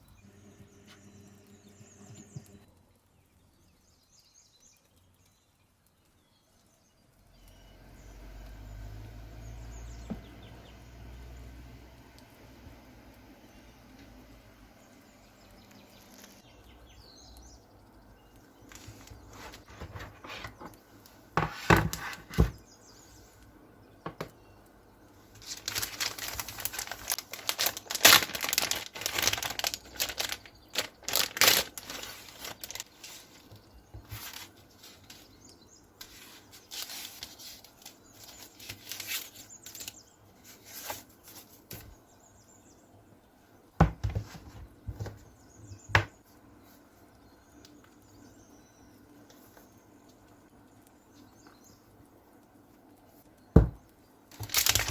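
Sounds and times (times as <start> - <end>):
wrapping crinkling and tearing: 15.8 - 16.5, 18.6 - 20.8, 25.3 - 41.9, 54.3 - 54.9.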